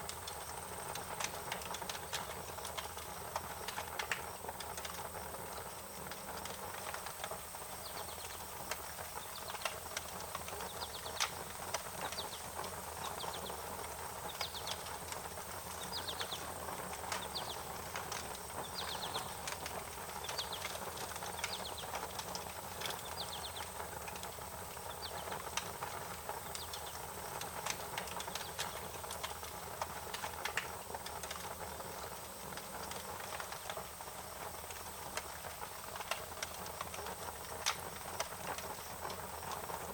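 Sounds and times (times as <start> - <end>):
wood fire crackling and popping: 0.0 - 39.9
small birds chirping: 7.8 - 8.4, 9.2 - 24.0, 24.8 - 27.4, 28.1 - 29.0.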